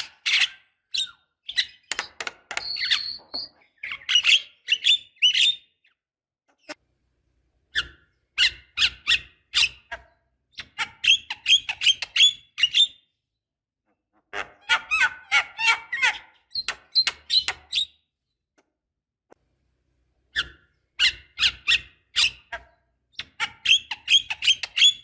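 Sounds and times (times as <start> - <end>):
bird squeaky calls: 0.0 - 5.8, 7.7 - 13.0, 14.4 - 18.0, 20.3 - 25.0.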